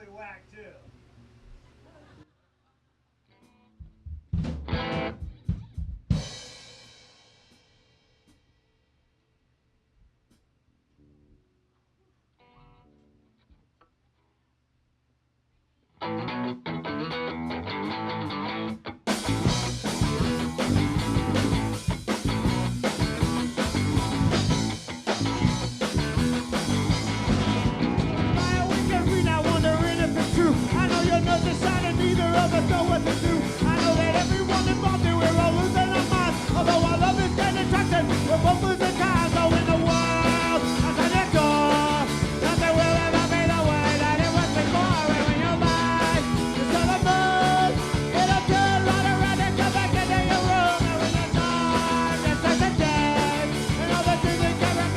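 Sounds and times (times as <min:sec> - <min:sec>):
live rock band playing: 0:04.4 - 0:06.8, 0:16.0 - 0:54.9
person singing: 0:28.4 - 0:54.9.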